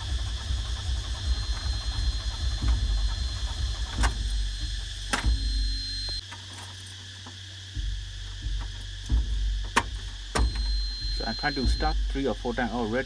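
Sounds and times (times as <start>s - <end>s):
diesel engine rumble: 0.0s - 6.2s, 7.8s - 13.0s
high warning beep: 1.2s - 6.2s, 10.3s - 13.0s.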